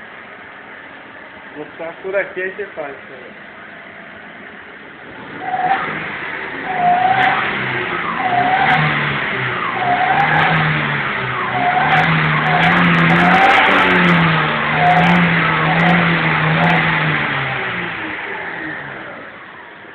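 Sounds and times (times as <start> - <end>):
car engine revving roughly: 5.0 - 19.9.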